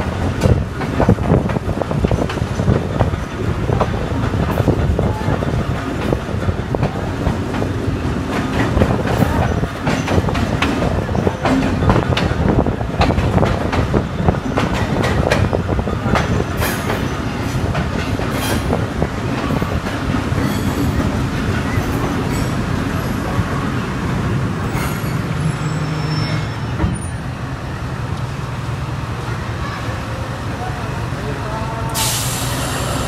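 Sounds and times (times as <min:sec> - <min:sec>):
wheels clacking over rail joints: 0:00.0 - 0:23.7
train running rumble: 0:00.0 - 0:33.0.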